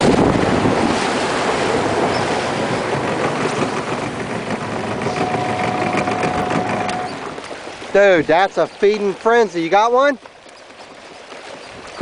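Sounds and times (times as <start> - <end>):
wind buffeting microphone: 0.0 - 9.3
wind and open water rushing: 0.0 - 12.0.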